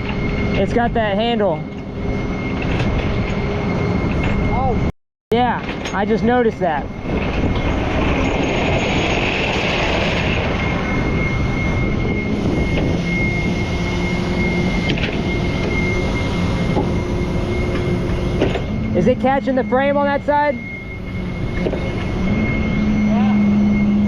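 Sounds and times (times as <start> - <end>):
hydraulic high whine: 0.0 - 24.0
tow truck engine rumble: 5.6 - 23.1.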